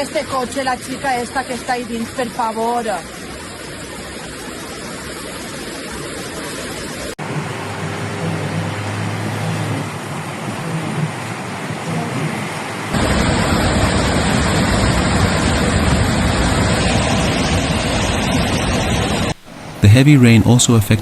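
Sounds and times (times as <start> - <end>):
floodwater and rain rushing: 0.0 - 20.9
vehicle engine humming: 6.8 - 21.0.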